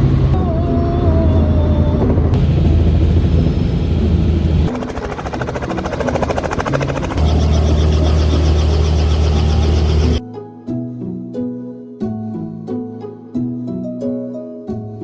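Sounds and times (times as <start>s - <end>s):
helicopter rotor and engine drone: 0.0s - 10.2s
plucked harp music: 10.2s - 15.0s.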